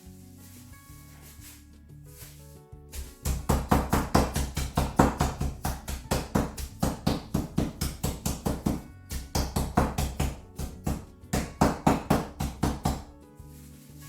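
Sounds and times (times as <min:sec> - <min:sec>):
meat being pounded flat: 0:03.0 - 0:13.1.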